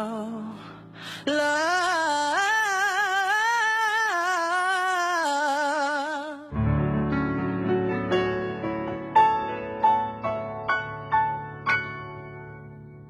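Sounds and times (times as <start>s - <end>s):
person singing with vibrato: 0.0s - 6.6s
piano chords and notes: 0.0s - 13.0s.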